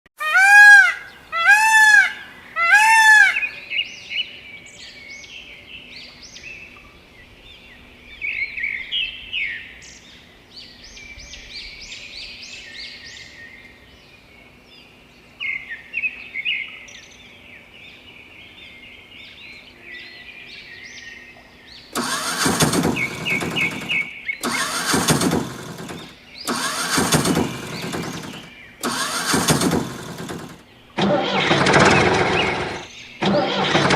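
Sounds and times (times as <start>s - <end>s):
loud arched bird calls: 0.2s - 3.8s, 21.9s - 33.9s
birds chirping: 16.9s - 33.9s
bursts of rushing noise: 22.0s - 33.9s.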